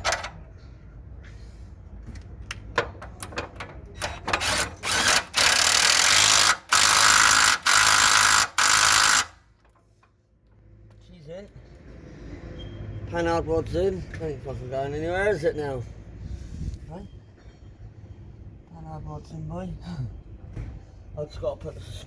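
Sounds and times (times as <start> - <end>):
tools clicking and knocking: 2.1 - 11.0
power tool bursts: 4.4 - 9.4.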